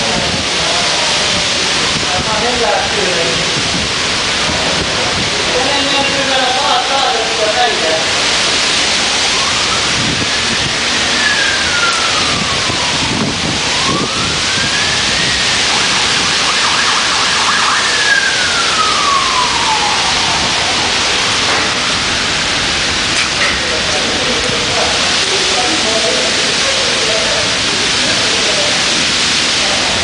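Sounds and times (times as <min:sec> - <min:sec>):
wind and rain rushing: 0:00.0 - 0:30.0
siren wailing: 0:08.4 - 0:22.9.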